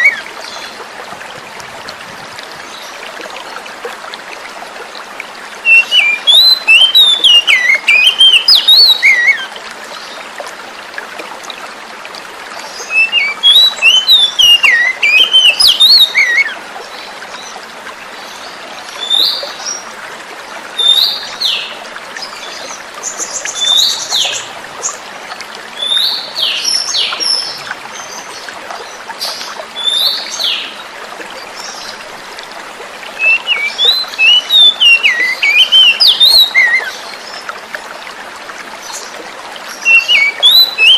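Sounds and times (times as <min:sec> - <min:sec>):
flowing water: 0:00.0 - 0:40.9
bird singing whistled phrases: 0:05.7 - 0:09.5, 0:12.9 - 0:16.6, 0:33.2 - 0:37.0, 0:39.8 - 0:40.9.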